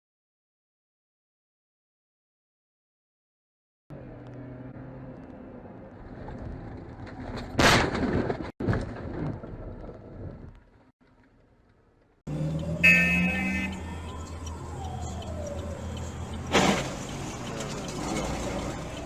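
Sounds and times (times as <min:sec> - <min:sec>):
road noise: 0:03.9 - 0:19.0
bang: 0:07.3 - 0:10.4
engine noise: 0:12.3 - 0:19.0.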